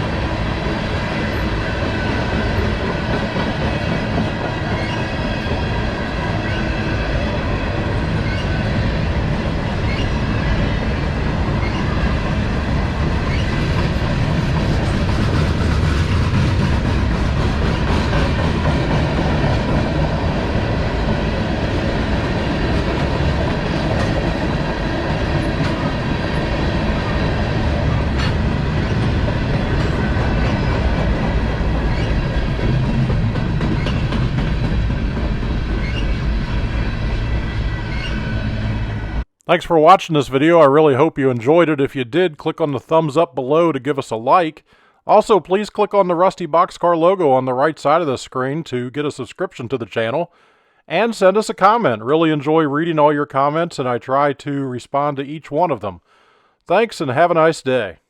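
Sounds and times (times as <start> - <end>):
train cars rolling on track: 0.0 - 39.2.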